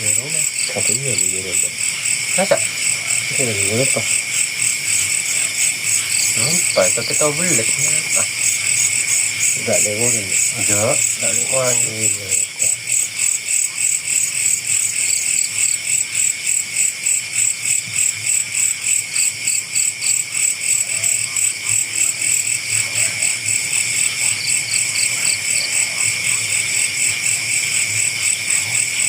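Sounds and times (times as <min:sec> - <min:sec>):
higher pulsed insect call: 0:00.0 - 0:29.0
insects chorus: 0:00.0 - 0:29.0.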